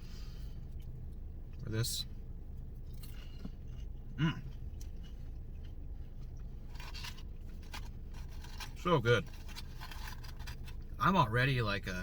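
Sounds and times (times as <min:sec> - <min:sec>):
steady low hum: 0:00.0 - 0:12.0
person chewing crunchy food: 0:02.8 - 0:11.0.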